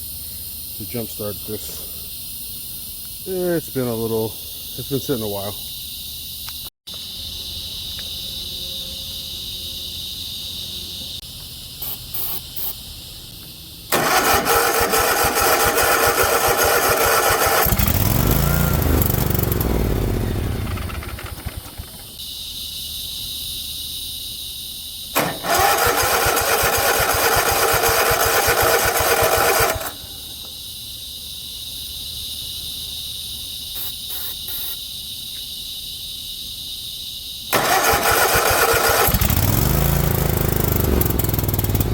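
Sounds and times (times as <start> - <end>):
insects buzzing: 0.0 - 41.9
mower engine cranking: 13.9 - 22.0, 25.2 - 30.0, 37.6 - 41.9.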